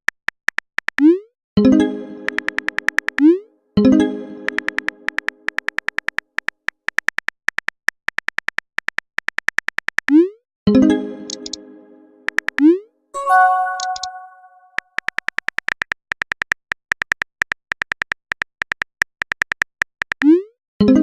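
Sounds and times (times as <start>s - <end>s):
phone keyboard typing clicks: 2.3s - 3.2s, 4.5s - 10.1s, 13.4s - 14.3s
message chime: 13.2s - 14.7s.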